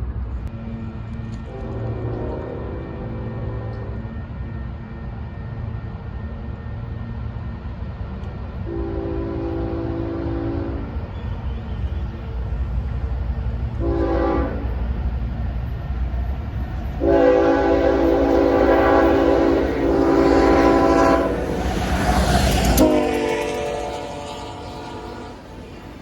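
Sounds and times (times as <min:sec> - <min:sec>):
train rumble: 0:00.0 - 0:26.0
train horn blasts: 0:01.4 - 0:04.2, 0:08.6 - 0:11.0, 0:13.8 - 0:14.8, 0:17.0 - 0:25.8.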